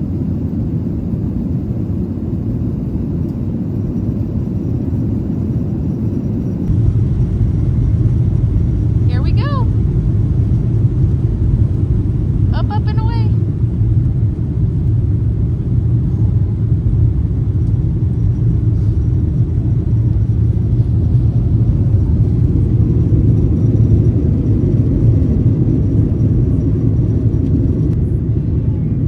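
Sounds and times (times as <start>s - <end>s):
vehicle running low rumble: 6.6s - 29.0s.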